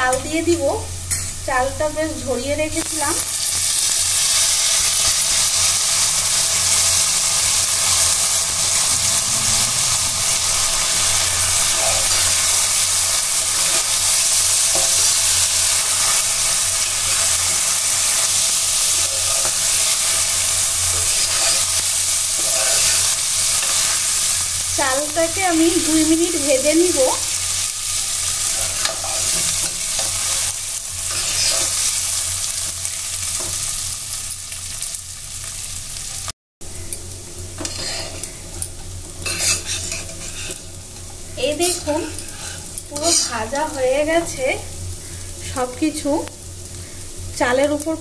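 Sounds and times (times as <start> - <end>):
hot oil sizzling: 0.0 - 48.0
low hum: 6.5 - 26.5
spatula stirring rice: 13.6 - 24.1, 39.2 - 40.8.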